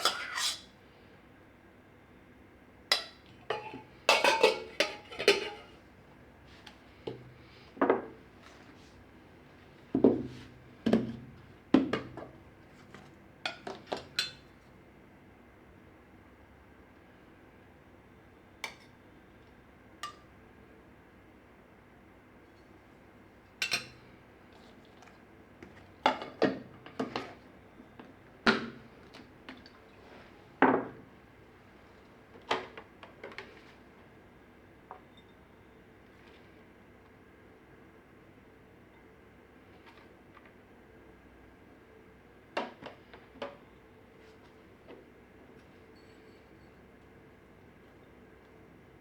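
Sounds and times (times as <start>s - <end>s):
dishes and utensils clinking: 0.0s - 0.7s, 2.9s - 5.8s.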